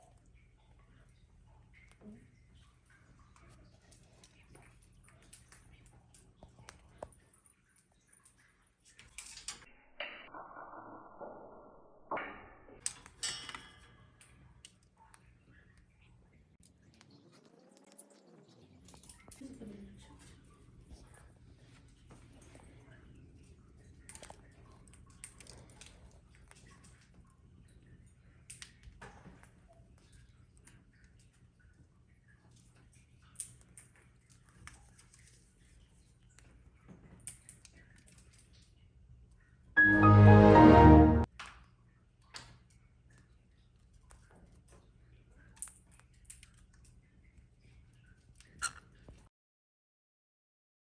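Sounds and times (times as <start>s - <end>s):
bird beak cracking food: 24.0s - 27.2s, 28.5s - 29.6s, 32.8s - 35.5s, 36.3s - 38.7s, 45.4s - 47.0s.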